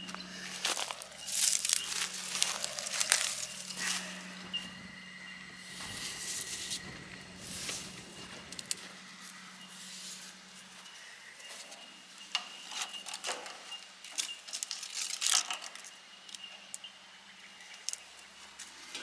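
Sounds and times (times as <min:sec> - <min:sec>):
low hum: 0:00.0 - 0:13.2
faint steady high tone: 0:00.0 - 0:14.4.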